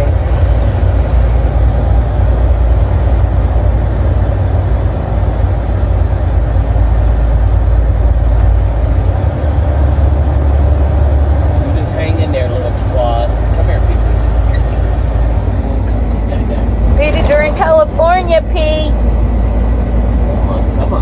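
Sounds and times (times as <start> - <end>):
truck engine drone: 0.0 - 21.0.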